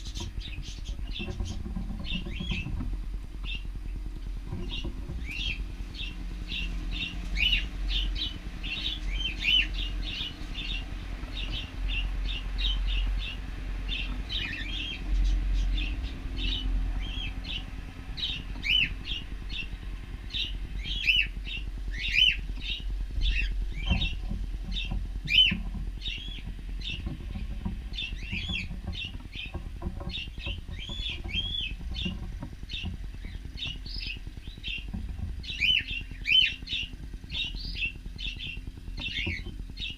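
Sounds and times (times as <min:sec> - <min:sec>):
steady low rumble: 0:00.0 - 0:39.9
cockatiels chirping: 0:35.4 - 0:39.9.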